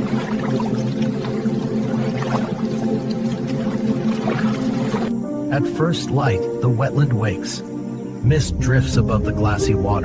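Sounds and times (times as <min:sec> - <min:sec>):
water droplets: 0:00.0 - 0:05.1
water trickling and pouring: 0:00.0 - 0:05.2.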